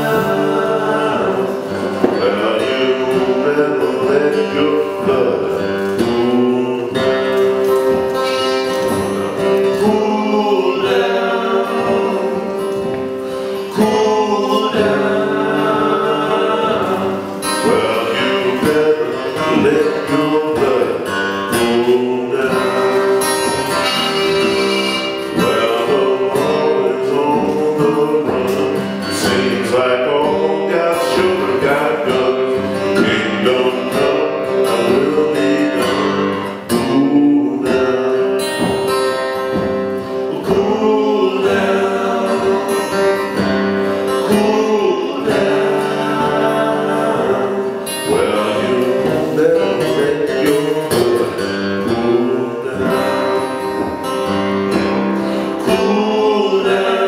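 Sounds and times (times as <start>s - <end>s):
blues harmonica bending notes: 0.0s - 14.0s, 15.0s - 27.0s
acoustic guitar picking: 0.0s - 57.0s.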